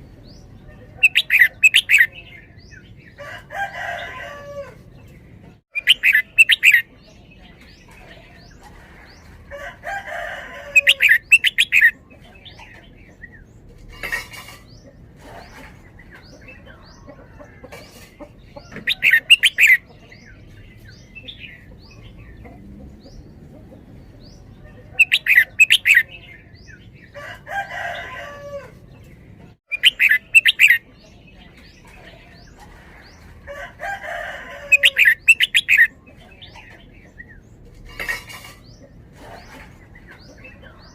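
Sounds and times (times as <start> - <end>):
bird singing bright phrases: 0.0 - 9.4, 10.1 - 14.9, 18.4 - 33.3, 34.6 - 38.0.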